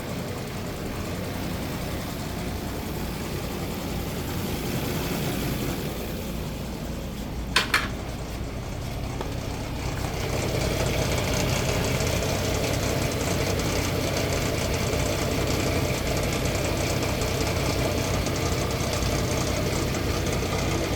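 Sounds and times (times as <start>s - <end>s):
engine idling with knock: 0.0s - 20.9s.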